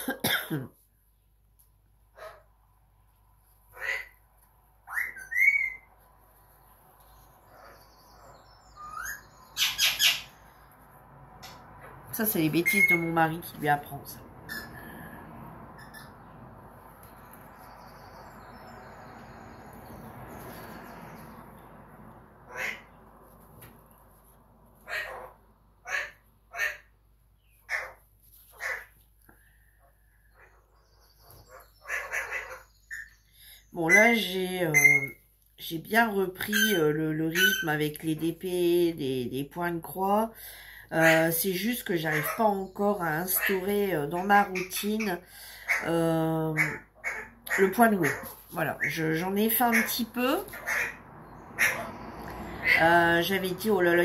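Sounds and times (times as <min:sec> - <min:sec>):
harsh bird calls: 0:03.7 - 0:05.9, 0:06.6 - 0:10.8, 0:12.4 - 0:21.6, 0:24.9 - 0:35.2, 0:40.4 - 0:54.0
pet bird squawking and whistling: 0:04.8 - 0:05.9, 0:07.6 - 0:10.4, 0:33.9 - 0:35.2
bird whistling: 0:04.9 - 0:05.8.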